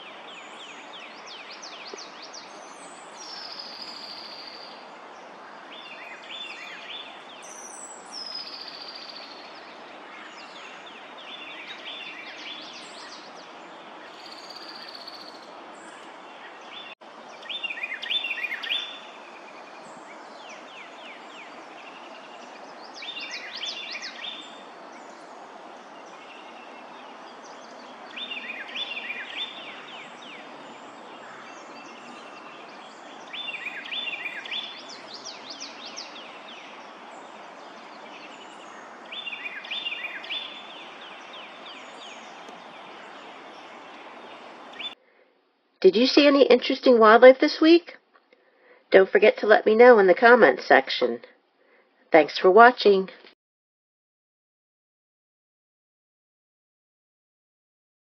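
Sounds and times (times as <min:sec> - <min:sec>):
songbird singing: 0:00.0 - 0:45.0, 0:45.8 - 0:48.0
steady background hiss: 0:00.0 - 0:45.0.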